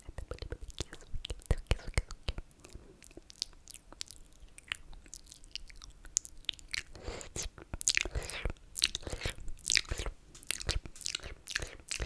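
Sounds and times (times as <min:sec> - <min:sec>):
wet lip and tongue clicks: 0:00.0 - 0:12.0
wet slurp: 0:06.8 - 0:12.0.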